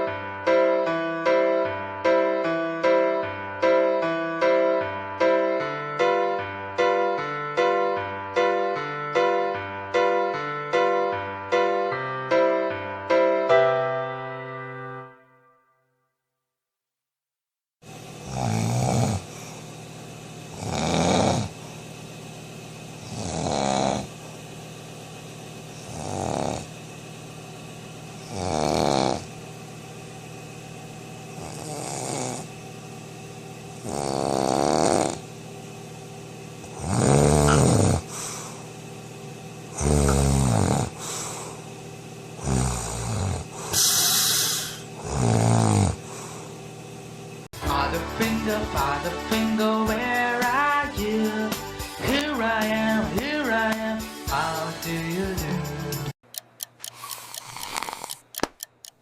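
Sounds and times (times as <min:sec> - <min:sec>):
person snoring: 0:18.2 - 0:19.6, 0:20.5 - 0:21.7, 0:23.0 - 0:24.2, 0:25.8 - 0:26.7, 0:28.2 - 0:29.3, 0:31.4 - 0:32.5, 0:33.8 - 0:35.3, 0:36.7 - 0:38.6, 0:39.7 - 0:41.7, 0:42.4 - 0:46.6, 0:56.9 - 0:58.2.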